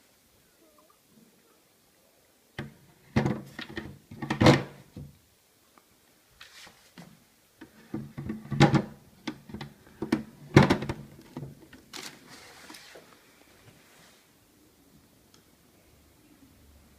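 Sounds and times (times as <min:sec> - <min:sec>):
plastic knocks and clicks: 0:02.6 - 0:05.1, 0:07.6 - 0:11.8
light rustle: 0:05.7 - 0:07.2, 0:11.9 - 0:14.4.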